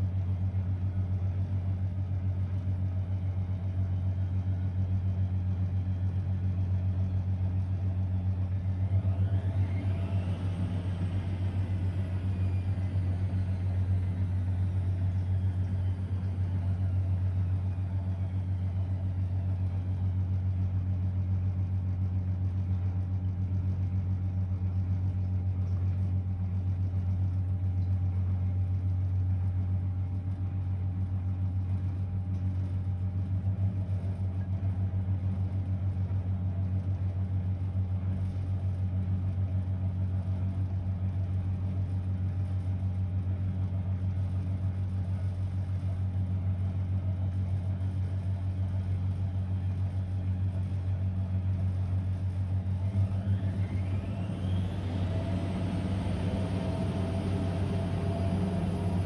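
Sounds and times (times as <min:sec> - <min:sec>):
washing machine humming: 0:07.0 - 0:21.6, 0:48.4 - 0:59.0.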